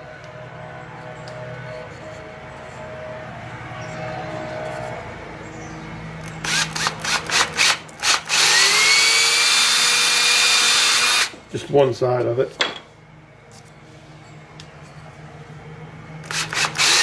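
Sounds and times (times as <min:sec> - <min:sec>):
power drill whining: 0:06.2 - 0:11.4, 0:16.2 - 0:17.0.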